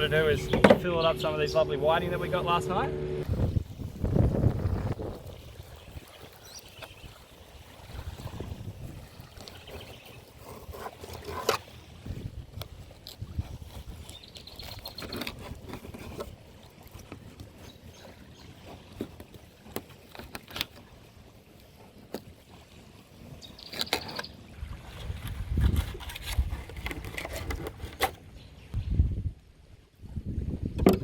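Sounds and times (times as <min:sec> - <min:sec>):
wind rumbling on microphone: 0:03.2 - 0:11.1, 0:11.9 - 0:18.4, 0:24.5 - 0:31.0.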